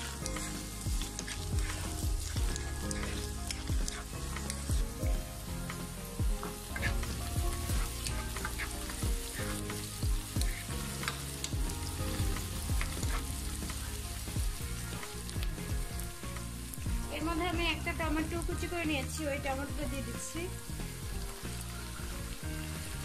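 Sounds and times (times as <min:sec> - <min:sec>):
wooden spatula scraping a pan: 0:00.0 - 0:14.0
onions sizzling in hot oil: 0:00.0 - 0:23.0.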